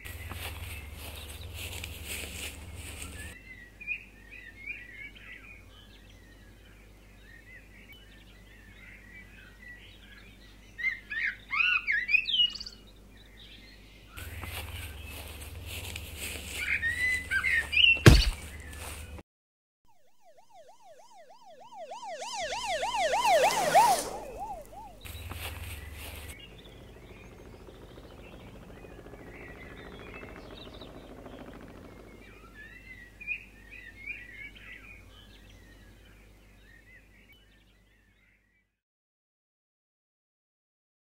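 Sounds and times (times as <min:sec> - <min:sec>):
police siren wailing: 0:00.1 - 0:03.4, 0:14.2 - 0:17.9, 0:19.9 - 0:26.4.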